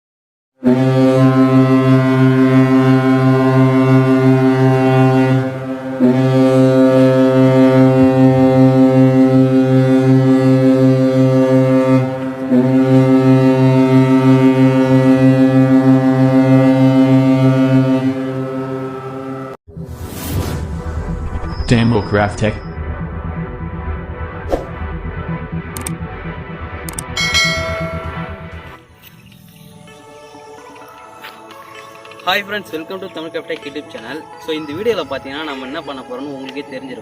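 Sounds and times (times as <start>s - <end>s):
ship's horn blasts: 0.6s - 19.6s, 27.2s - 28.8s.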